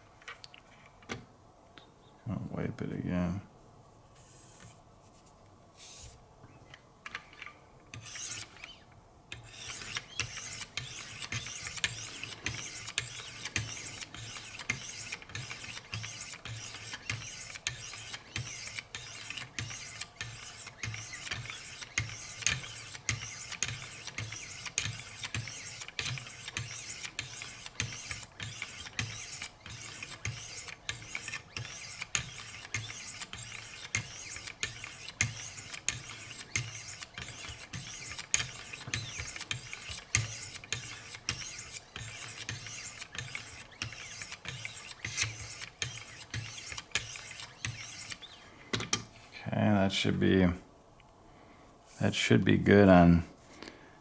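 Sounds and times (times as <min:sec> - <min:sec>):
sharpening stones scraping knife blade: 0:09.4 - 0:48.2.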